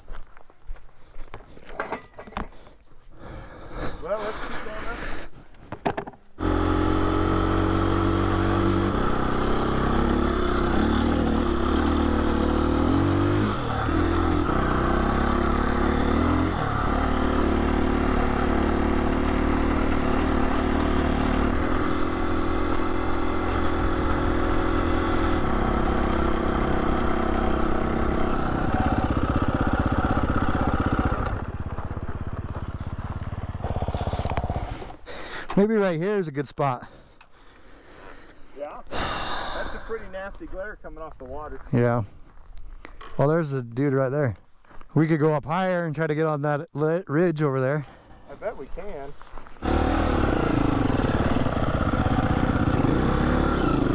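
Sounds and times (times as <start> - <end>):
dirt bike engine revving: 6.4 - 35.0, 48.2 - 53.9.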